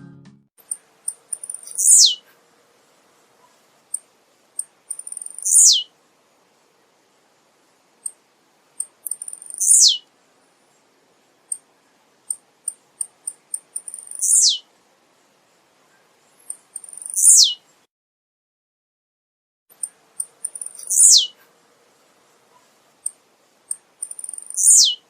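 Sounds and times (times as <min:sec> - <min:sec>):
bird singing high quick ticks: 0:00.6 - 0:02.2, 0:04.6 - 0:05.8, 0:08.8 - 0:10.0, 0:12.3 - 0:14.6, 0:16.4 - 0:17.6, 0:19.7 - 0:21.3, 0:23.0 - 0:25.0.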